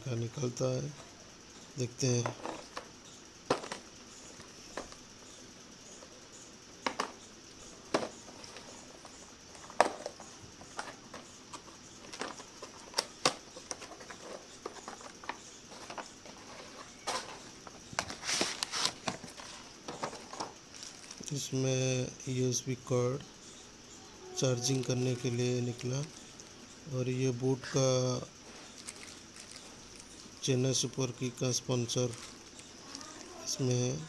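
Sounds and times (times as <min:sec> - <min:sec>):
packaging rustling and clicking: 0:07.9 - 0:21.3, 0:28.5 - 0:30.2, 0:32.0 - 0:33.3.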